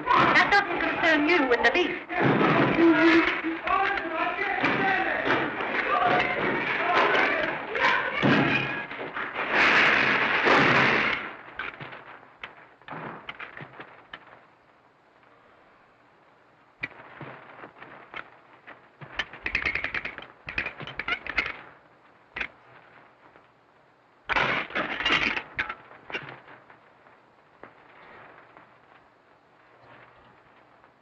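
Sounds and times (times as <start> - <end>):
loud crash: 0.0 - 12.2
scattered knocks: 0.0 - 14.4, 16.8 - 21.8
rapid clatter: 0.0 - 14.5, 16.8 - 23.5, 24.3 - 29.0.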